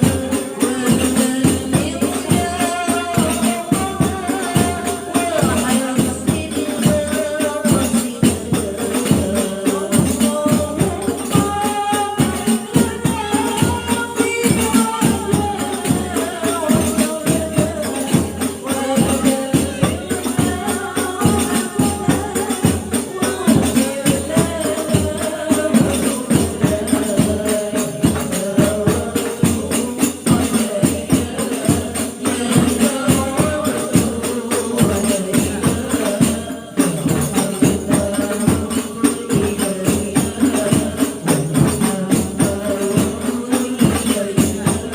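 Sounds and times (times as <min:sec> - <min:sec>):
frame drums beating: 0:00.0 - 0:44.9
women singing together: 0:00.0 - 0:44.9.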